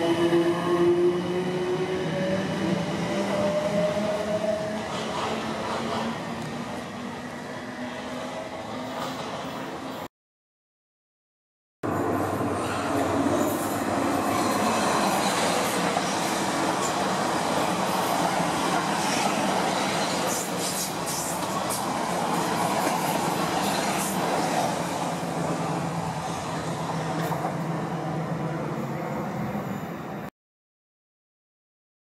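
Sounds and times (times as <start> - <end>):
train wheels rumbling on rail: 0.1 - 7.1, 11.9 - 29.8.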